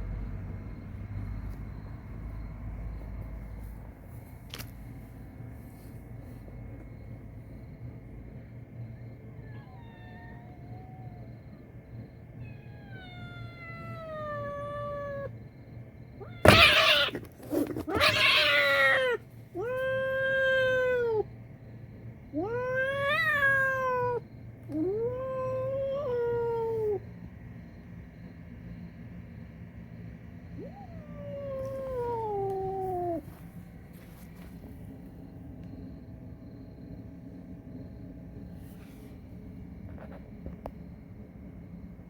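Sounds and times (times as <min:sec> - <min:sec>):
cat meowing: 0:09.4 - 0:11.2, 0:12.4 - 0:15.3, 0:16.2 - 0:17.2, 0:17.9 - 0:21.3, 0:22.3 - 0:27.0, 0:30.6 - 0:33.3
cat yowling: 0:09.4 - 0:11.6, 0:12.4 - 0:15.3, 0:16.2 - 0:17.2, 0:17.8 - 0:21.3, 0:22.3 - 0:27.0, 0:30.6 - 0:33.3.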